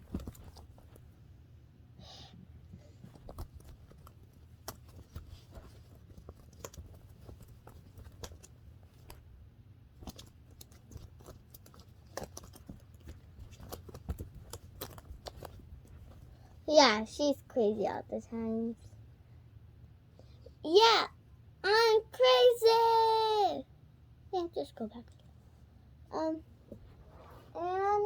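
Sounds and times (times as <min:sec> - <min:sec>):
clicks and rustles of handled objects: 0:00.0 - 0:01.2, 0:02.8 - 0:09.3, 0:09.9 - 0:16.6
low steady hum: 0:00.0 - 0:28.0.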